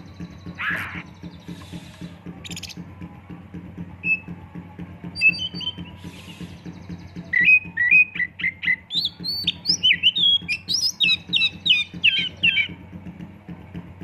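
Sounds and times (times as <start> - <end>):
bird singing whistled song: 2.4 - 2.8, 4.0 - 4.3, 5.2 - 12.8.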